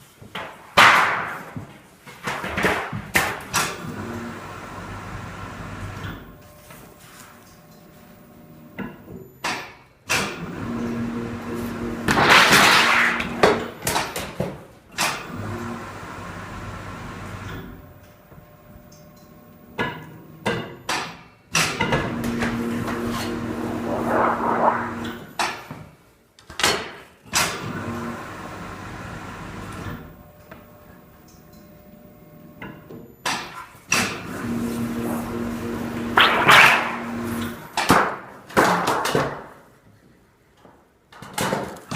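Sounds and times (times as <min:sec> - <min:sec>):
machine noise: 0:22.2 - 0:25.3.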